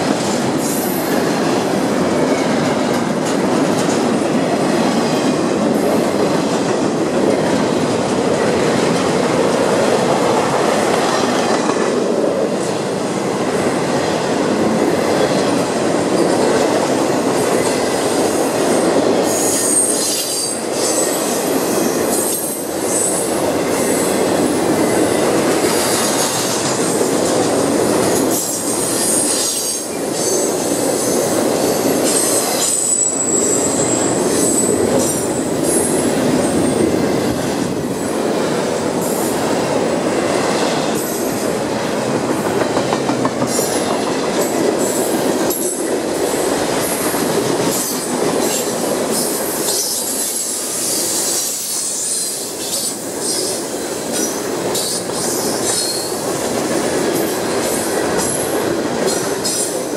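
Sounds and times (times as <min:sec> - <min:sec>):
train wheels rumbling on rails: 0:00.0 - 0:59.9
high-pitched wheel squeal: 0:32.6 - 0:34.7.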